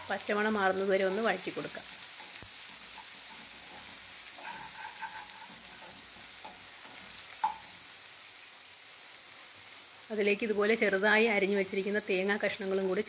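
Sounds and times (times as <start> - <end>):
food sizzling in oil: 0.0 - 13.0
spatula scraping pan: 1.9 - 7.6.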